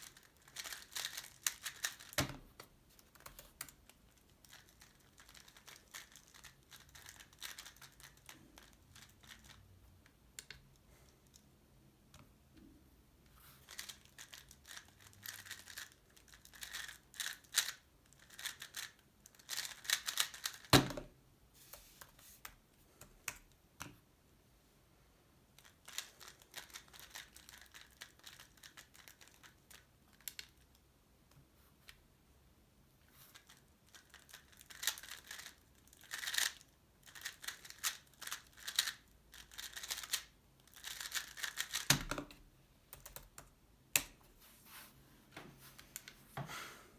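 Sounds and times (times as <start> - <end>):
plastic cube clicking and rattling: 0.0 - 9.6, 13.6 - 20.9, 25.6 - 30.7, 33.3 - 42.4.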